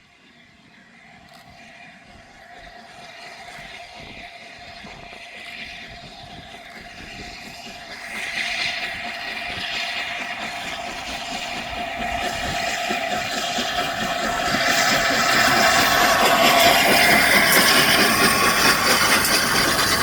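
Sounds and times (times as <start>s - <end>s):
steam locomotive approaching: 0.0s - 20.0s
hissing rush: 2.4s - 20.0s.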